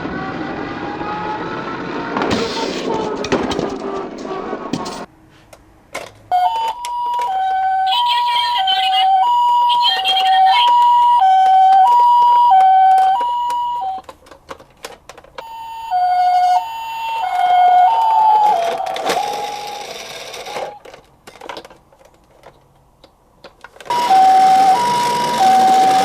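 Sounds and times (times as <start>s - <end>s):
clatter: 2.2s - 5.1s
toy siren two-tone: 6.3s - 14.0s, 15.4s - 20.8s, 23.9s - 26.0s.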